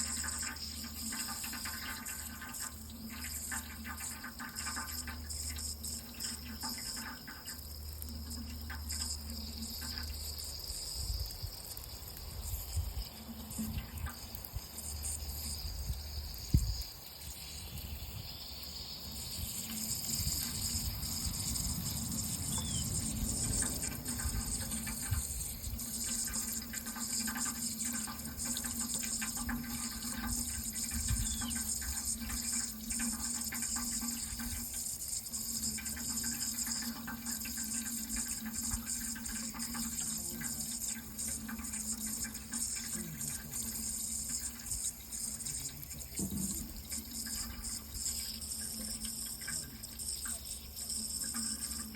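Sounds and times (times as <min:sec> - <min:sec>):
running water: 0:00.0 - 0:51.9
thump: 0:46.2 - 0:46.6.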